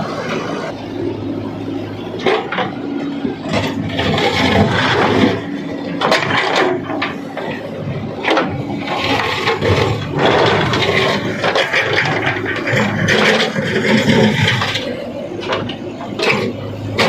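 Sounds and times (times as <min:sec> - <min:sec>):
diesel engine drone: 0:00.0 - 0:17.0
rough rushing and scraping: 0:02.2 - 0:17.0
knocks and clatters: 0:03.5 - 0:07.2.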